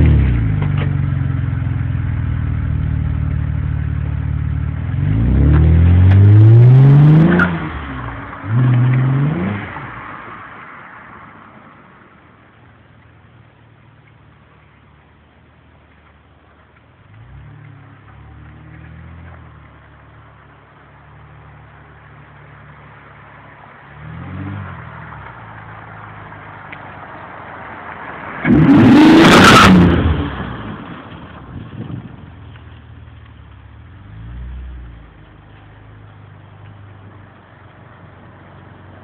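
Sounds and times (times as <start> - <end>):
car engine idling: 0.1 - 5.0, 30.6 - 39.0
car engine revving and accelerating: 4.5 - 10.1, 23.9 - 25.4, 27.5 - 31.3, 33.9 - 35.6.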